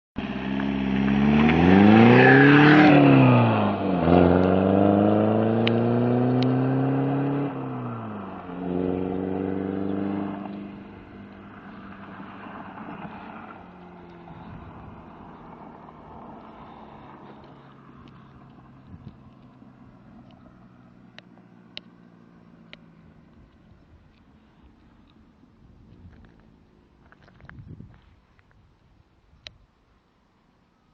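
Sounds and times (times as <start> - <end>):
diesel engine revving: 0.2 - 23.2.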